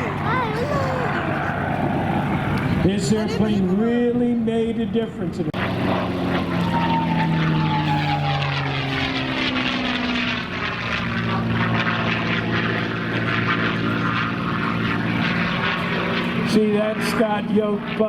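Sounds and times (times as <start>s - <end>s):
propeller plane engine passing: 0.0s - 18.0s.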